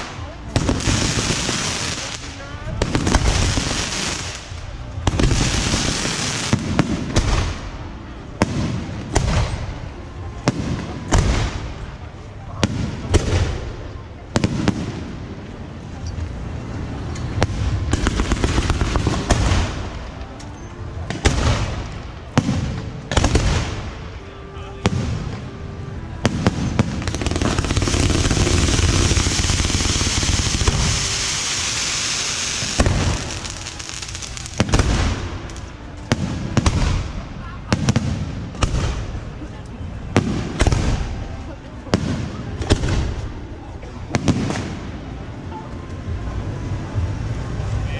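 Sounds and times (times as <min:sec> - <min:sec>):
fireworks sharp bangs: 0:00.0 - 0:15.6, 0:17.3 - 0:20.4, 0:21.0 - 0:24.2, 0:24.8 - 0:39.4, 0:40.0 - 0:45.4
steady noisy din: 0:00.0 - 0:47.9
sharp firework bangs: 0:21.1 - 0:23.9, 0:36.1 - 0:39.3.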